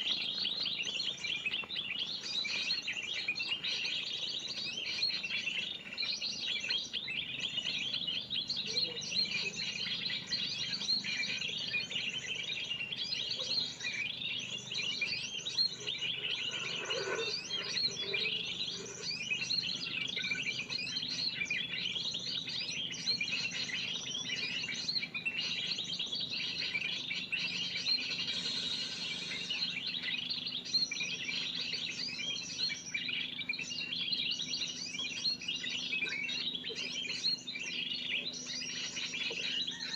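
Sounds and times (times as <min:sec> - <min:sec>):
lower bird call: 0:07.4 - 0:32.8
high-pitched bird chirping: 0:12.3 - 0:21.8, 0:26.6 - 0:30.3.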